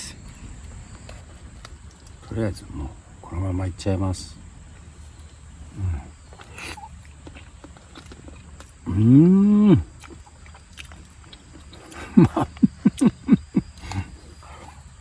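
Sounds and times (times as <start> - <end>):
man humming mmm: 8.8 - 10.0.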